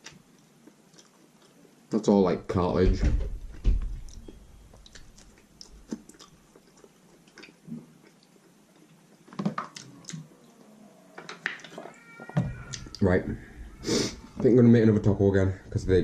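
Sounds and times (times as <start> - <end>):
person chewing food: 0.0 - 1.8, 4.1 - 13.0.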